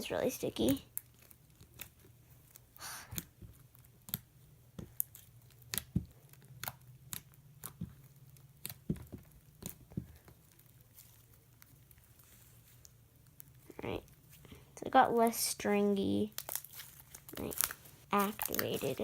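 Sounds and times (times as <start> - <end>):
slime clicking and popping: 0.7 - 11.9.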